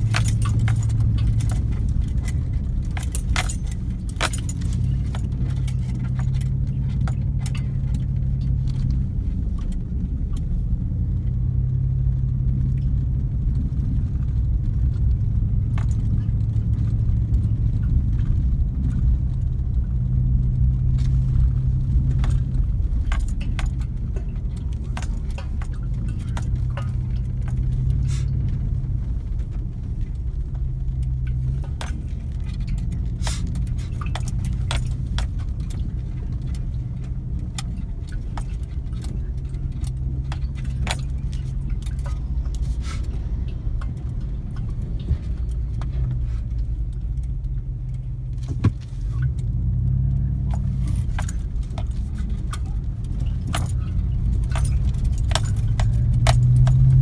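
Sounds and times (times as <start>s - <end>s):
light metallic clicks and rattles: 0.0s - 57.0s
vehicle engine running: 0.0s - 57.0s.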